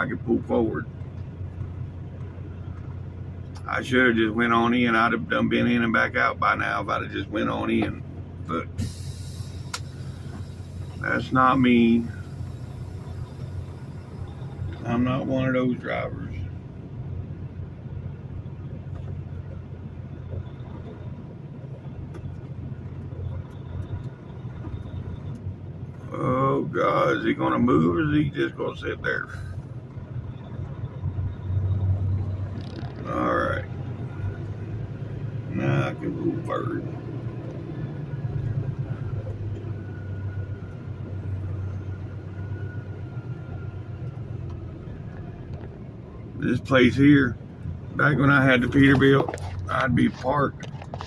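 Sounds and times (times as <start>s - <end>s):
truck diesel engine idling: 0.0s - 25.8s
faint thin whine: 8.8s - 16.5s.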